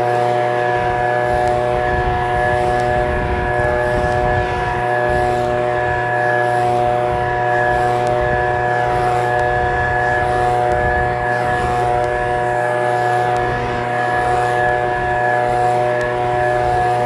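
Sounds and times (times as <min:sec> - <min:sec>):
leaf blower engine whine: 0:00.0 - 0:17.0.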